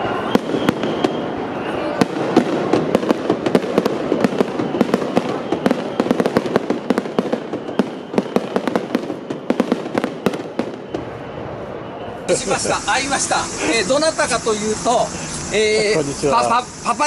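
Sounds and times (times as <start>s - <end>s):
fireworks cracking and popping: 0.0s - 11.6s
continuous rush of noise: 0.0s - 17.0s.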